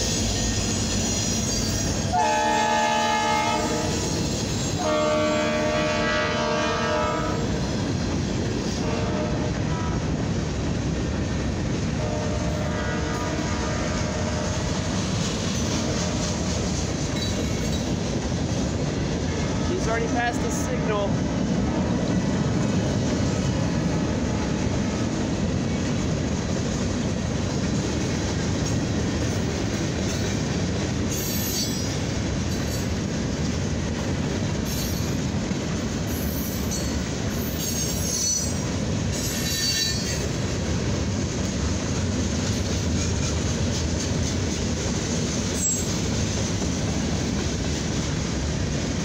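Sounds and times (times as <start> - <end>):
high-pitched wheel squeals: 0.0 - 2.2, 36.1 - 40.3
train wheels rumbling on rail: 0.0 - 49.0.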